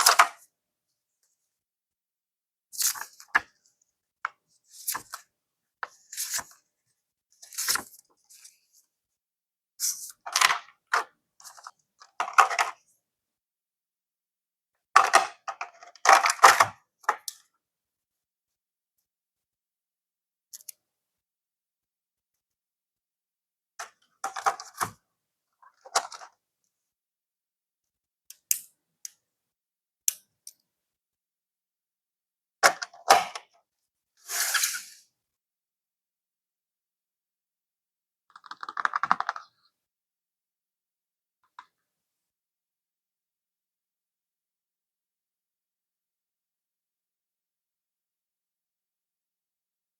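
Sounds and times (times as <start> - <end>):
clicks and taps of packaging: 38.3 - 39.6.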